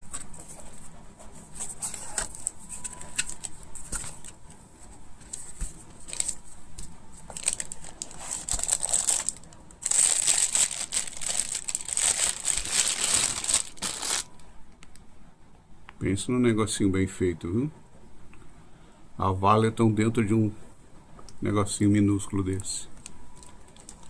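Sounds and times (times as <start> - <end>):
packaging crinkling: 6.0 - 6.4, 7.2 - 14.4, 23.0 - 24.0.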